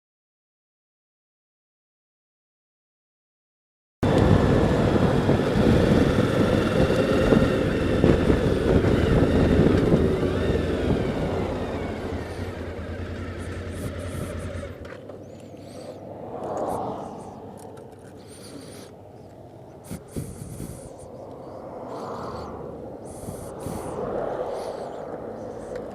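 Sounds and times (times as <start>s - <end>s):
wind noise: 4.0s - 14.8s, 16.0s - 18.4s, 19.0s - 25.9s
motorcycle engine: 4.0s - 15.4s
road noise: 4.0s - 25.9s.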